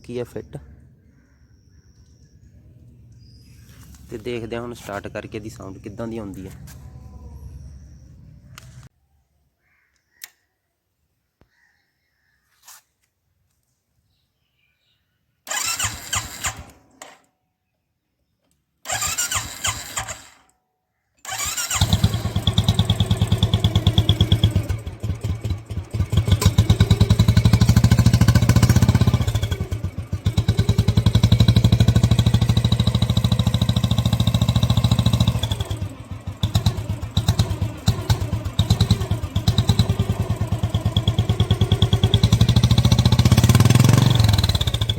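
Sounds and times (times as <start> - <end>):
motorcycle engine cranking: 15.5 - 17.2, 18.9 - 20.4, 21.2 - 44.9.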